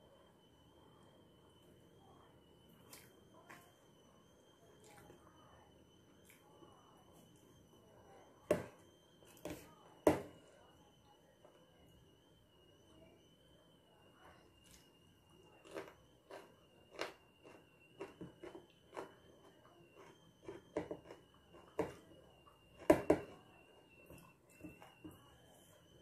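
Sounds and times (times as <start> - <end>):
faint high whine: 0.0 - 26.0
person chewing: 15.6 - 19.2, 20.0 - 21.6.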